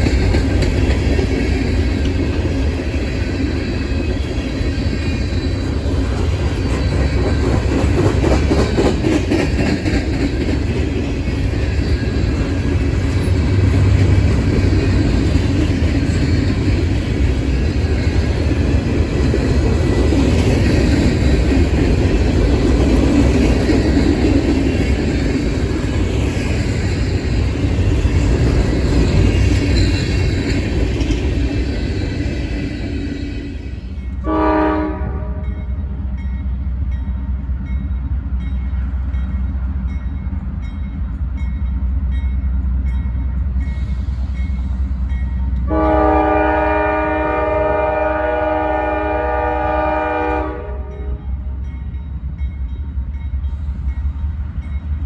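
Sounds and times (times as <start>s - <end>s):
train rumbling past: 0.0s - 55.0s
train horn blast: 34.2s - 35.7s, 45.7s - 51.4s.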